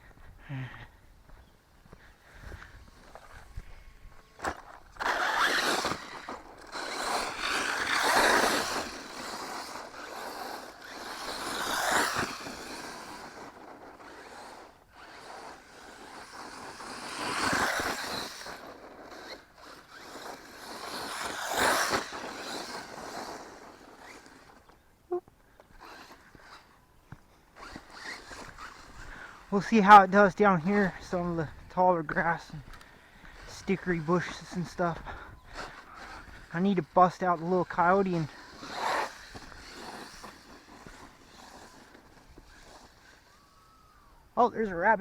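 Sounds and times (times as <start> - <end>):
rc truck motor and tyres: 0.0 - 45.0.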